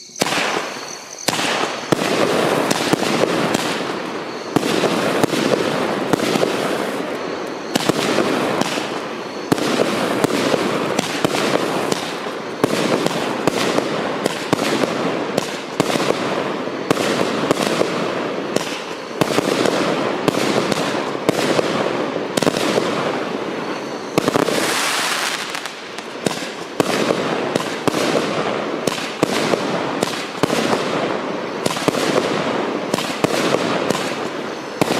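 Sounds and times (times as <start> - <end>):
fireworks barrage: 0.0 - 34.9.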